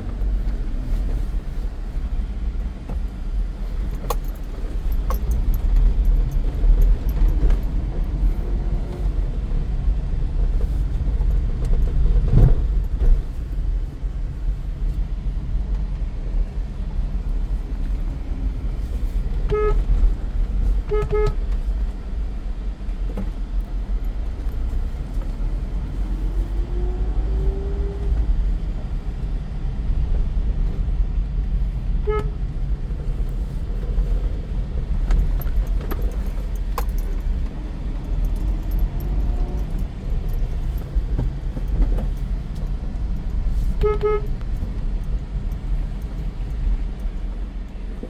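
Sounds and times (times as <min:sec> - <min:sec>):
road and tyre noise: 0:00.0 - 0:48.0
car horn toots: 0:19.4 - 0:20.1, 0:20.8 - 0:21.6, 0:32.0 - 0:32.4, 0:43.4 - 0:44.6.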